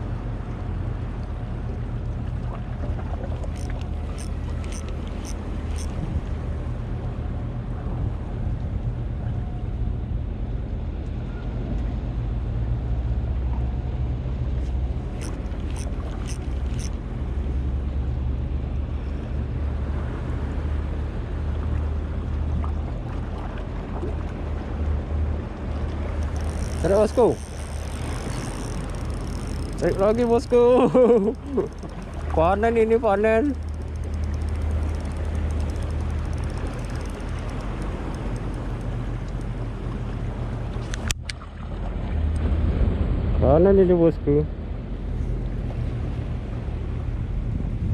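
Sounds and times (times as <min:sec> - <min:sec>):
boat motor humming: 0:00.0 - 0:43.4, 0:44.5 - 0:47.9
water noise: 0:00.0 - 0:43.7
sea noise: 0:00.0 - 0:47.9
wind: 0:00.0 - 0:47.9
sharp clicks: 0:03.5 - 0:06.0, 0:15.2 - 0:17.0, 0:26.1 - 0:30.6, 0:31.4 - 0:32.4, 0:33.4 - 0:39.6
rushing wind: 0:44.2 - 0:47.9.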